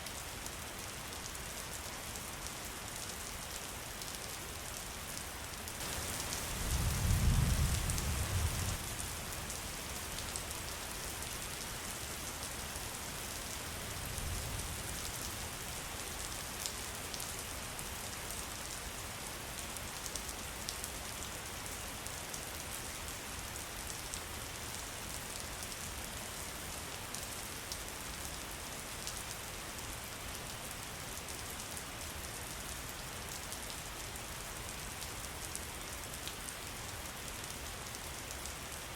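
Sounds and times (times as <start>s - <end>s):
raindrops ticking on a surface: 0.0s - 38.9s
steady rain: 0.0s - 38.9s
low thunder rumble: 6.5s - 8.8s.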